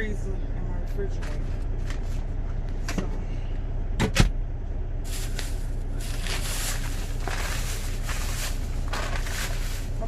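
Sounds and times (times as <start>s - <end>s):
truck engine idling: 0.0s - 10.0s
crinkly handling noise: 5.1s - 10.0s.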